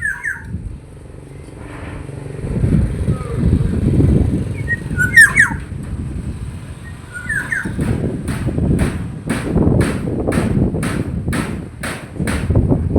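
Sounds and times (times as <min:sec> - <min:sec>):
oriole calling: 0:00.0 - 0:00.6, 0:02.9 - 0:05.8, 0:06.7 - 0:08.0
low rumbling background noise: 0:00.0 - 0:12.9.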